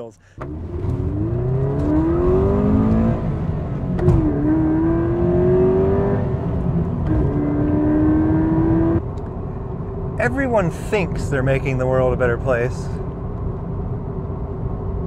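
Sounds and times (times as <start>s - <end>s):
car engine accelerating: 0.3s - 11.6s.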